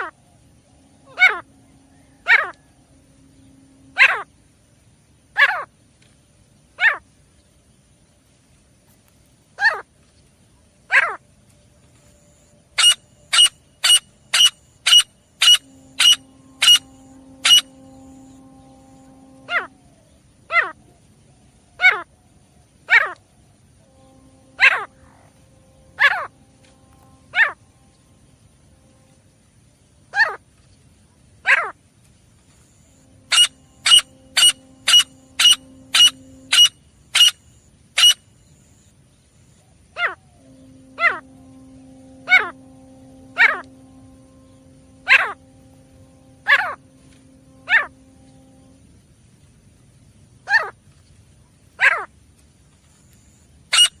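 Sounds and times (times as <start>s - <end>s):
faint steady hum: 0.0s - 54.0s
bird calling sharp high notes: 12.7s - 20.1s, 23.8s - 29.2s, 32.9s - 38.2s, 40.0s - 48.8s.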